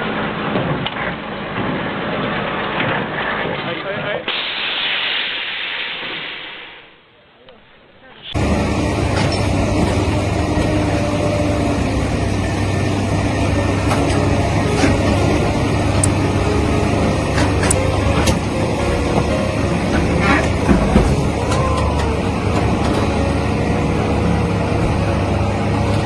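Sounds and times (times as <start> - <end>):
heavy vehicle engine droning: 8.3 - 26.0.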